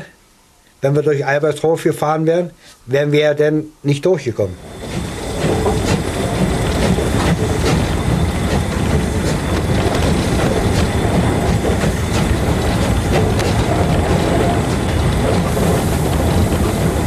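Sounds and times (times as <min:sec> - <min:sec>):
steam train rumbling: 0:04.2 - 0:17.0
wheels clicking over rail joints: 0:04.6 - 0:17.0.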